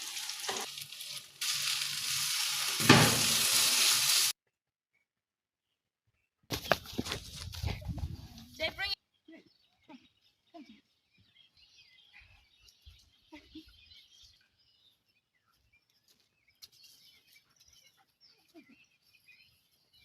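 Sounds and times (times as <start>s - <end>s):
faint birds chirping: 4.9s - 20.0s.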